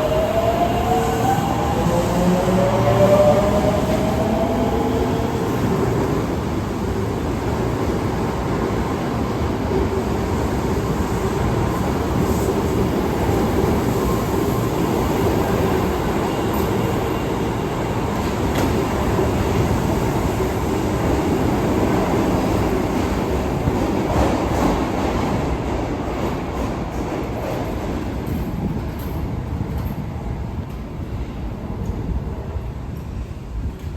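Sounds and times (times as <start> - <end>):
subway car rumbling in tunnel: 0.0 - 33.9.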